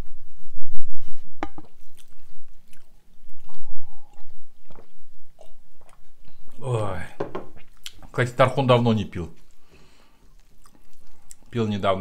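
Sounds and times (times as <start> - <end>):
people chewing: 1.6 - 6.9, 7.6 - 8.2, 9.4 - 11.6.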